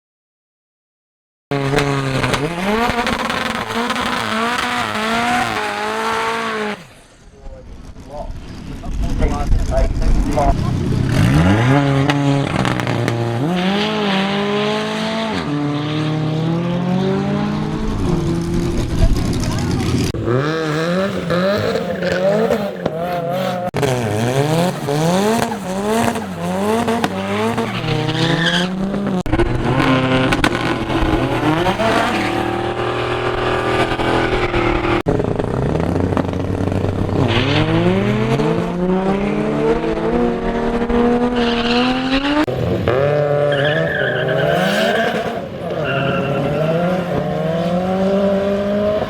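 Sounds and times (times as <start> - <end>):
turbocharged car engine revving: 1.5 - 7.1, 8.7 - 49.0.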